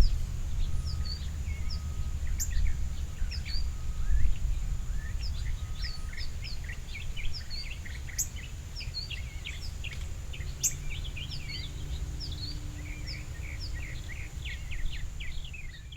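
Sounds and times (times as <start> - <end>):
steady low rumble: 0.0 - 7.6
small songbirds chirping: 0.0 - 15.9.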